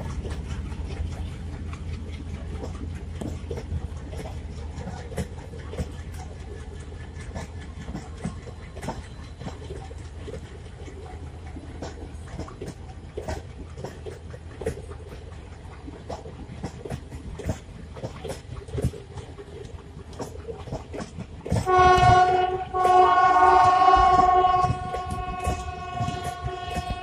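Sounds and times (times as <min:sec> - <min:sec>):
train rumble: 0:00.0 - 0:27.0
train wheels clicking over rail joints: 0:00.0 - 0:27.0
locomotive horn: 0:21.6 - 0:27.0.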